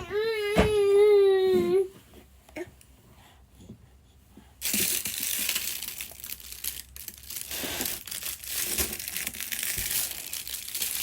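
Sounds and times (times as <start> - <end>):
crinkling of something squeezed: 4.6 - 11.0.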